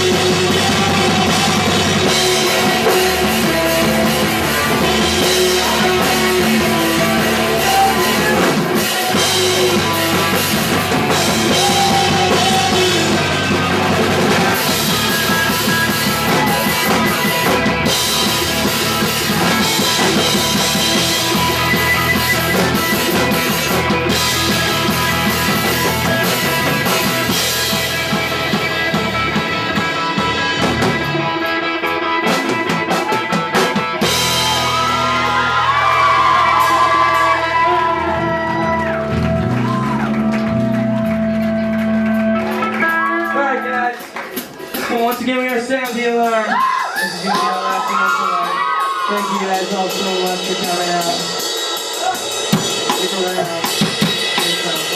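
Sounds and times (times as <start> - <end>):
live punk rock band: 0.0 - 54.9
pounding drum kit: 0.0 - 54.9.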